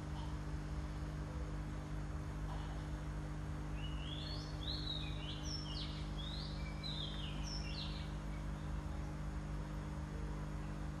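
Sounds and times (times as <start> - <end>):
steady low hum: 0.0 - 11.0
small birds chirping: 3.7 - 9.3.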